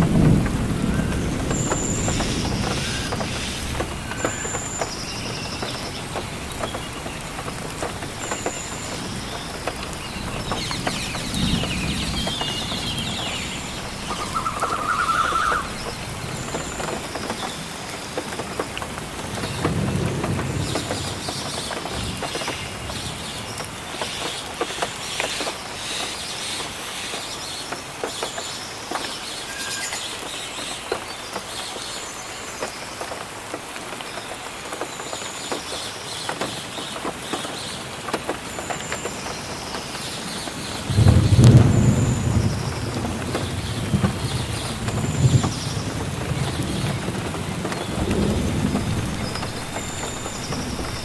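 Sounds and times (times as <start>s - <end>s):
thunder rumbling: 0.0s - 17.9s, 19.0s - 23.6s, 40.1s - 51.0s
raindrops striking close by: 0.0s - 51.0s
steady rainfall: 0.0s - 51.0s.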